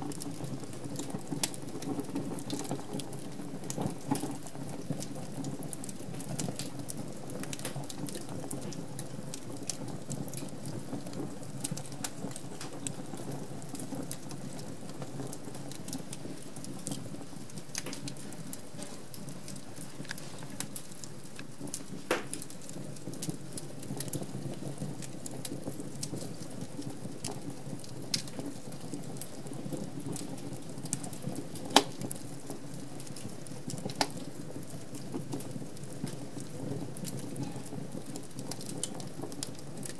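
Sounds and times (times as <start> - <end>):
wood fire crackling: 0.0 - 39.9
fire pop: 7.5 - 8.8, 9.6 - 26.4, 31.6 - 32.2, 33.0 - 34.3.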